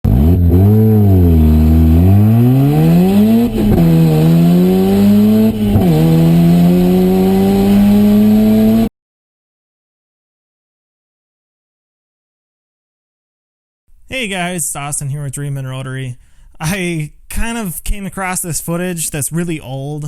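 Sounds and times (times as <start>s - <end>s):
car engine accelerating hard: 0.0s - 8.9s.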